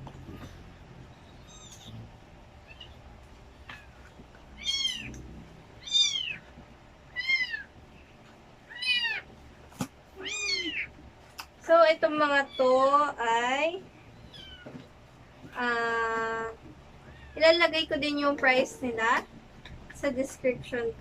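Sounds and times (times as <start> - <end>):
kitten meowing: 1.3 - 2.0, 4.6 - 5.2, 5.8 - 6.4, 7.1 - 7.7, 8.7 - 9.3, 10.2 - 10.9, 14.2 - 14.7.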